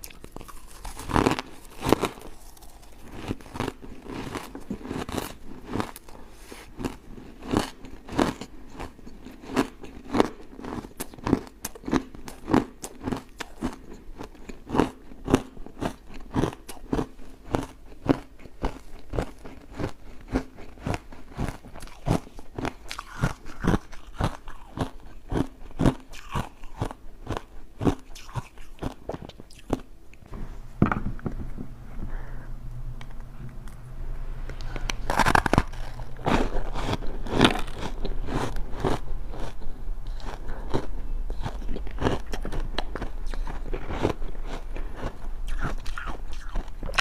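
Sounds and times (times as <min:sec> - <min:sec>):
ice chunks being crunched: 0:35.1 - 0:39.0.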